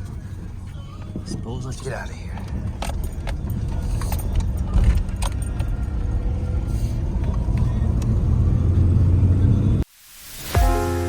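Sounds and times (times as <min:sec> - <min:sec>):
light clicks and jingles: 0:00.0 - 0:06.2
truck engine and road rumble: 0:00.0 - 0:09.9.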